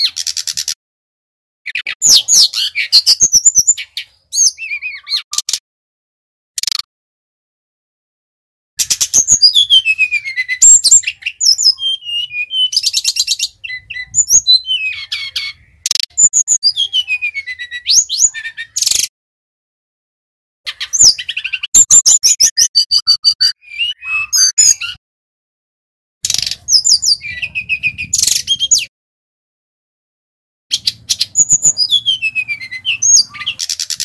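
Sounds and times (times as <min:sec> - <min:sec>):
bird singing trills and whistles: 0:00.0 - 0:00.8, 0:01.7 - 0:05.6, 0:08.8 - 0:19.1, 0:20.7 - 0:25.0, 0:26.2 - 0:28.9, 0:30.7 - 0:34.0.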